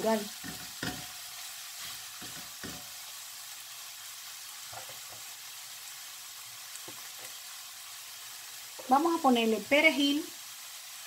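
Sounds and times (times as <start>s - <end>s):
vegetables sizzling in oil: 0.0s - 11.0s
spatula stirring: 0.3s - 3.0s.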